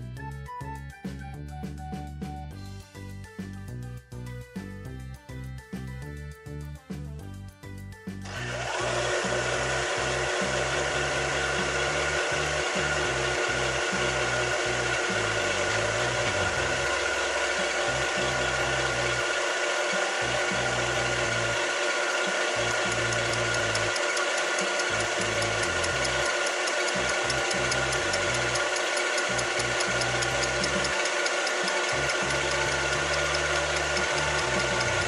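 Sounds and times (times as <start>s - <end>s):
milling machine cutting metal: 8.3s - 35.0s.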